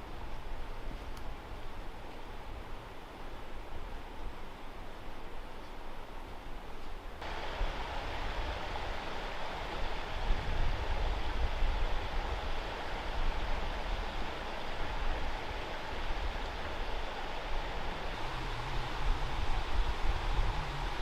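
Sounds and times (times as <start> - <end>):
rushing water: 7.2 - 21.0
low rumble: 18.0 - 21.0.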